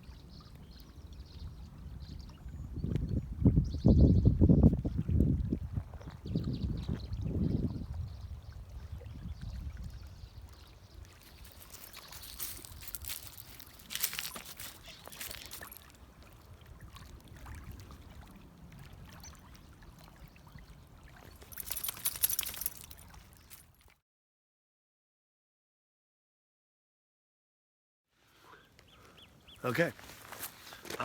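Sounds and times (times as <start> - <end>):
river water trickling and splashing: 0.0 - 3.6, 4.6 - 24.0.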